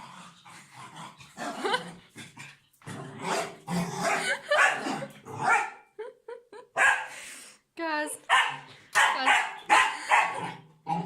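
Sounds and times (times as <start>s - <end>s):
puppy growling: 0.0s - 5.6s, 10.0s - 11.0s
puppy barking: 3.3s - 5.8s, 6.8s - 7.1s, 8.3s - 10.6s.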